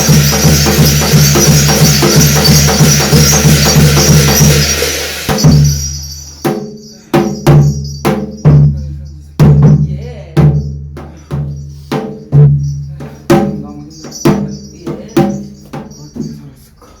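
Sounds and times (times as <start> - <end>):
low ringing drum strokes: 0.0 - 6.6
crashing cymbals: 0.0 - 9.7, 10.5 - 17.0
fast drumming: 0.0 - 16.6.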